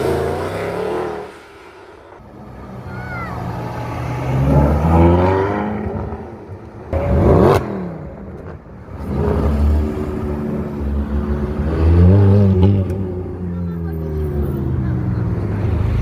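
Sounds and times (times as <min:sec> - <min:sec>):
car passing loudly: 0:00.0 - 0:08.1
sports car engines revving: 0:00.0 - 0:16.0.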